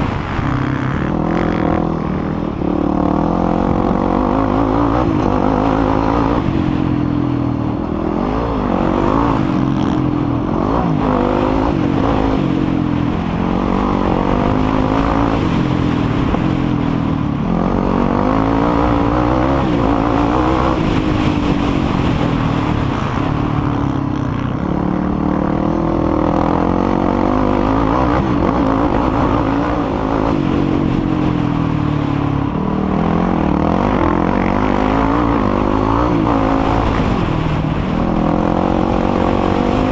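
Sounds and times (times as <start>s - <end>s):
quad engine revving: 0.0s - 7.2s, 8.0s - 16.8s, 24.7s - 31.3s, 31.9s - 39.9s.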